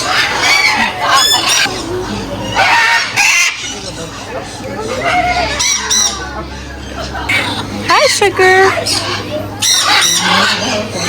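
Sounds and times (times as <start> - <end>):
parrots squawking: 0.0 - 11.0.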